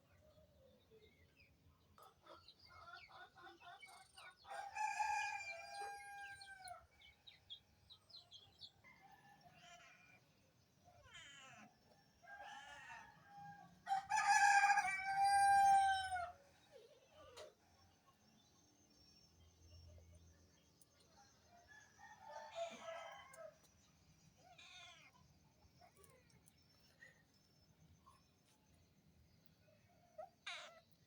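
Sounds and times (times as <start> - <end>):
rooster crowing: 4.5 - 6.7, 13.8 - 16.4.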